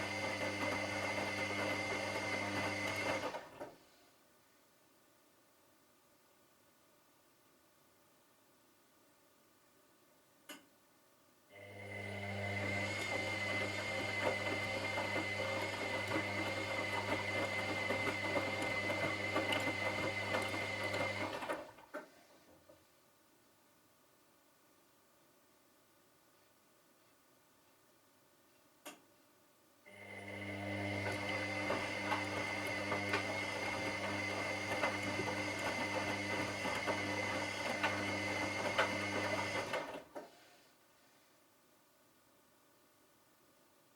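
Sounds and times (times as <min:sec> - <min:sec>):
washing machine motor humming: 0:00.0 - 0:03.6, 0:11.8 - 0:21.8, 0:29.9 - 0:40.1.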